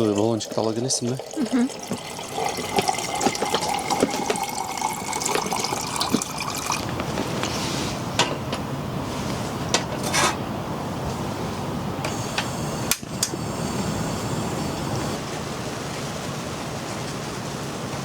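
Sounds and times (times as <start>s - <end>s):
water pouring into a pot: 0.0s - 7.0s
steady hiss: 11.0s - 18.0s.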